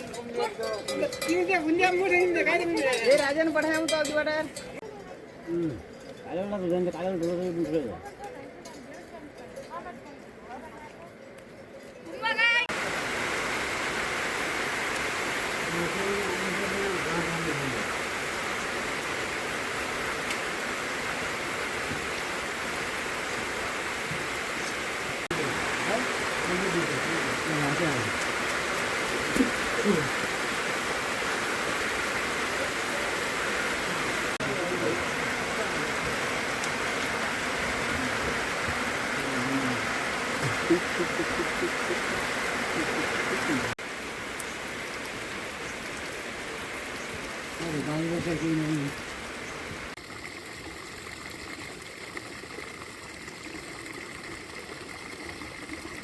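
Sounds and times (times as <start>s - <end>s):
heavy rain falling: 12.6s - 50.0s.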